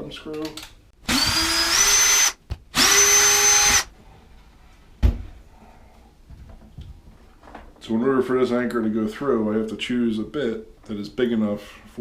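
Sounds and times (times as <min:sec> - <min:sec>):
electric drill motor whine: 0:01.1 - 0:03.9.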